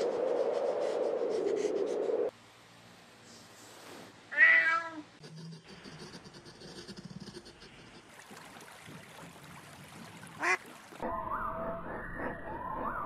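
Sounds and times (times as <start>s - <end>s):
cat meowing: 4.3s - 5.1s.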